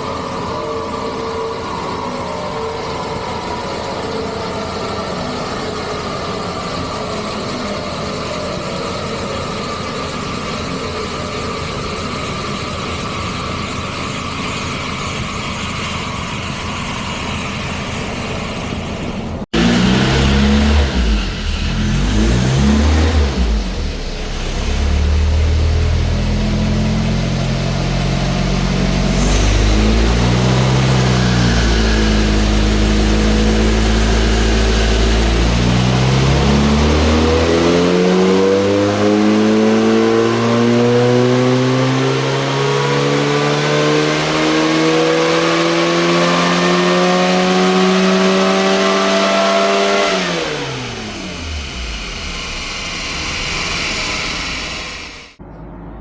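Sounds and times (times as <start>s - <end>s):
car engine revving under load: 19.4s - 55.4s.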